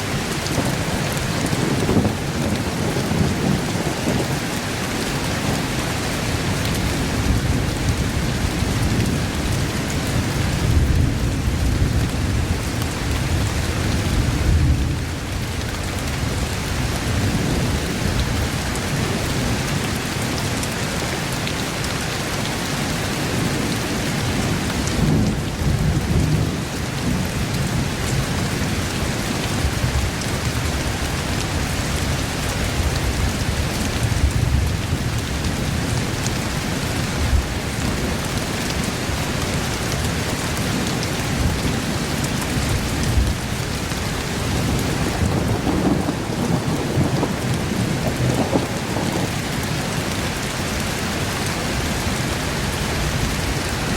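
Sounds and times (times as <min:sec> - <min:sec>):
heavy rain: 0:00.0 - 0:53.9
thunder rumbling: 0:00.1 - 0:19.7, 0:39.8 - 0:49.9.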